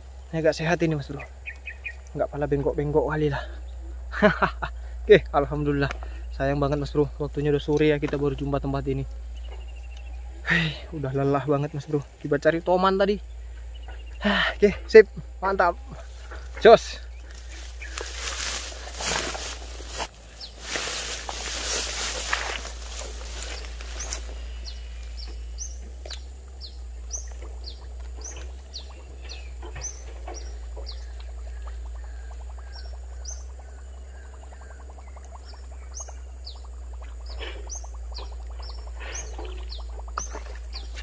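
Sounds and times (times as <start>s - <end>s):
steady low rumble: 0.0s - 41.0s
bird high chirps: 1.1s - 2.0s, 20.4s - 41.0s.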